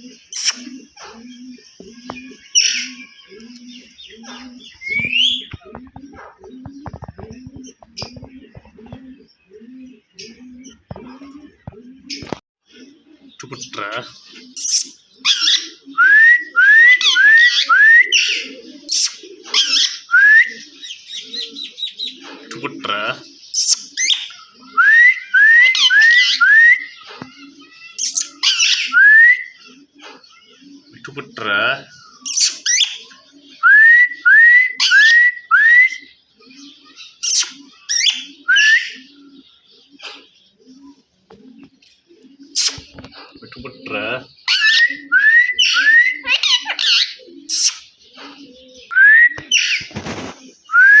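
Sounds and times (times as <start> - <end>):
parakeet squawks: 0.3 - 0.6, 14.5 - 15.7, 18.2 - 20.0, 23.5 - 24.3, 27.7 - 28.9, 32.2 - 33.0, 37.2 - 39.0, 42.5 - 42.9, 45.6 - 47.9
parrot whistled calls: 0.3 - 0.6, 14.6 - 20.6, 23.6 - 26.9, 28.0 - 29.6, 32.2 - 33.0, 33.6 - 36.1, 37.2 - 39.0, 42.5 - 42.8, 44.5 - 47.9, 50.7 - 51.0
shrill parrot chirps: 0.3 - 0.6, 14.6 - 15.6, 18.9 - 20.0, 23.6 - 24.3, 28.0 - 29.0, 32.2 - 33.0, 37.2 - 39.0, 42.5 - 42.8, 45.6 - 47.9.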